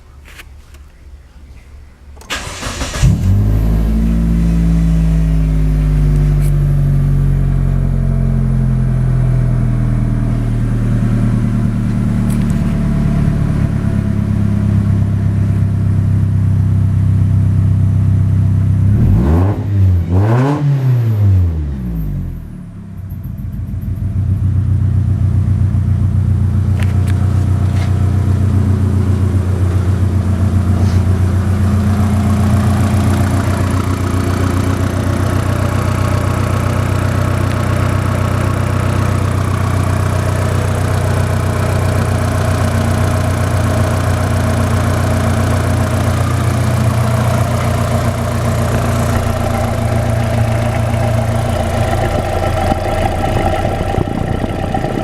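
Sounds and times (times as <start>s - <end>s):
car engine idling: 0.0s - 20.5s, 21.2s - 55.0s.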